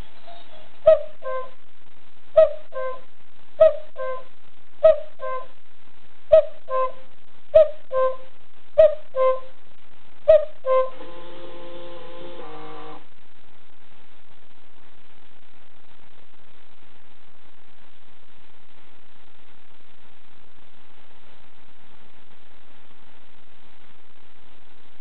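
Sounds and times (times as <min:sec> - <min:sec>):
held chord of steady tones: 0:10.3 - 0:13.1.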